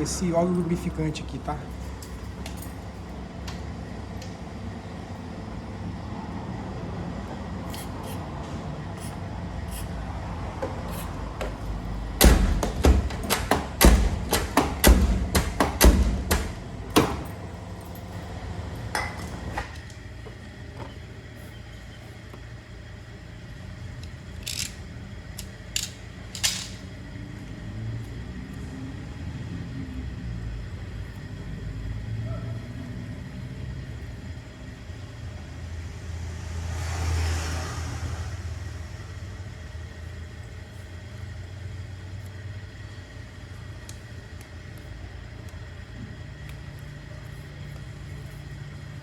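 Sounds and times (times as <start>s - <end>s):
car door latch clicks and knocks: 12.2s - 17.3s.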